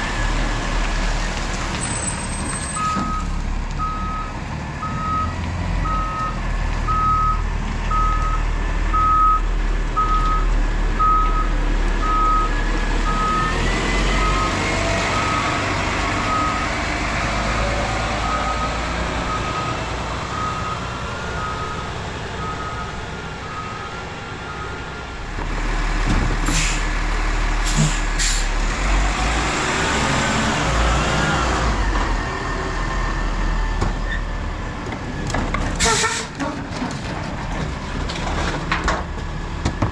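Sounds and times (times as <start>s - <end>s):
truck engine drone: 0.0s - 39.9s
air brake hisses: 26.5s - 26.9s, 27.6s - 28.5s.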